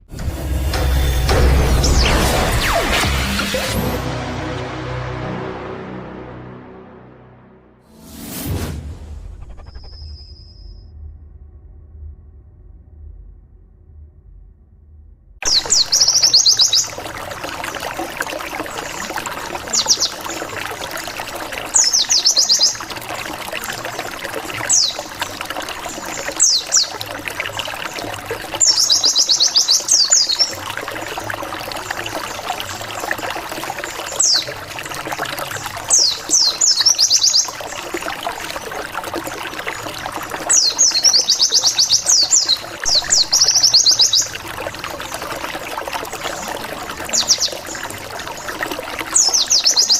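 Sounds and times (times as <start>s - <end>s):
trickling water: 0.1s - 5.6s, 15.4s - 49.9s
bird singing rapid high notes: 15.4s - 17.2s.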